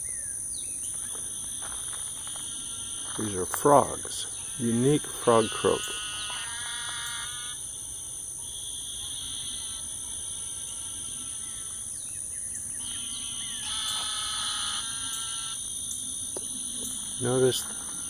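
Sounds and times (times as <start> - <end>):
frogs chorus trilling: 0.0 - 18.0
high-pitched insect drone: 0.0 - 18.0.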